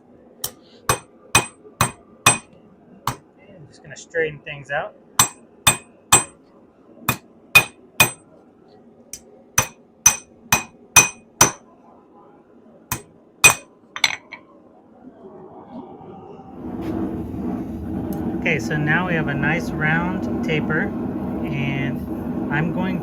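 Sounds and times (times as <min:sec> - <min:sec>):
hammer ringing on steel rod: 0:00.4 - 0:02.5, 0:05.2 - 0:06.3, 0:07.6 - 0:08.2, 0:09.6 - 0:11.6, 0:12.9 - 0:13.7.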